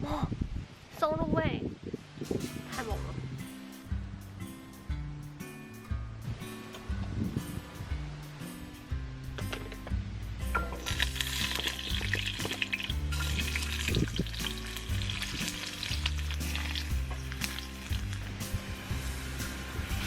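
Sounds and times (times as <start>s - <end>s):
background music: 2.0s - 20.0s
food sizzling in a pan: 10.8s - 20.0s.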